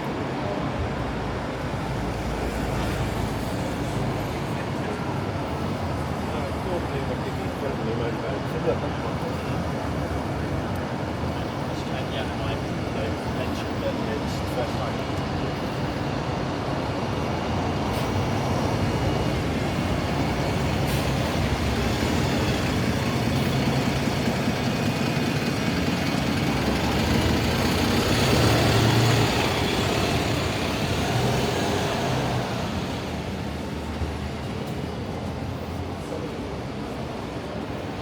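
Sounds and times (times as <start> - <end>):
heavy vehicle passing: 17.8 - 34.3.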